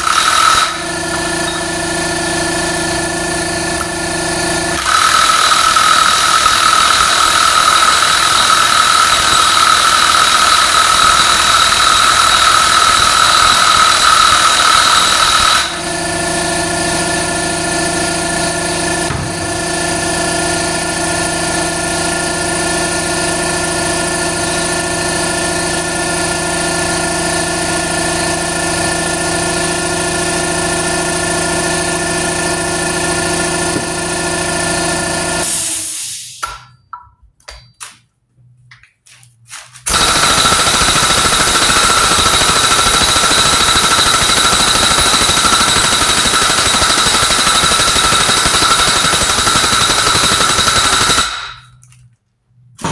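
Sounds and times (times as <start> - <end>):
impact gun hammering on a nut: 39.9 - 51.8.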